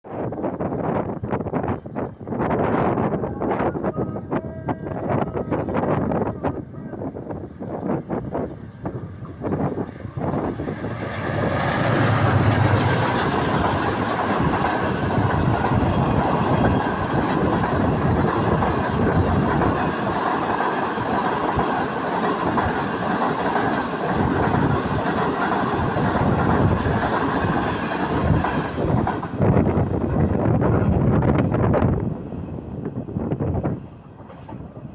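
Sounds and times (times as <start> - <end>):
train wheels clattering: 8.5 - 29.4.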